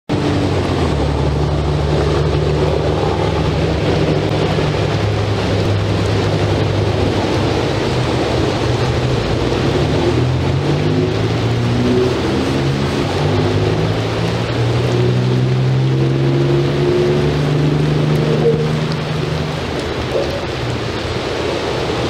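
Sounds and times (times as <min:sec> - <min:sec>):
rain: 0:00.1 - 0:22.0
wind noise on microphone: 0:00.1 - 0:22.0.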